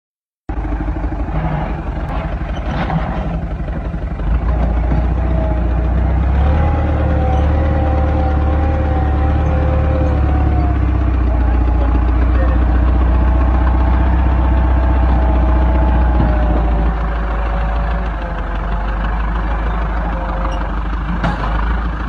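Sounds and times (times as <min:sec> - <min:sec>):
tractor diesel engine running: 0:00.5 - 0:22.0.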